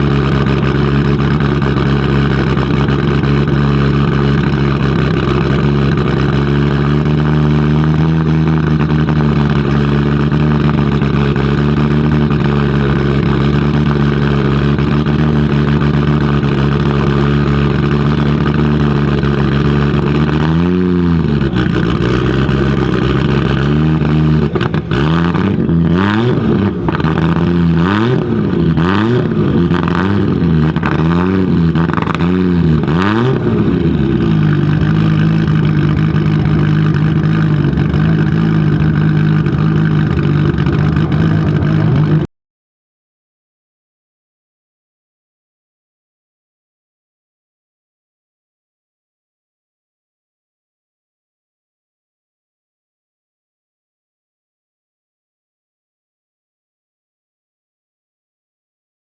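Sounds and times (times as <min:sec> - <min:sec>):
car engine idling and revving: 0:00.0 - 0:42.3.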